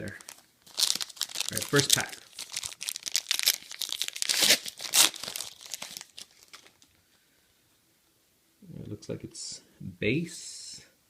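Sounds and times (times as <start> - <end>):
wrapper being torn and crinkled: 0.0 - 6.9.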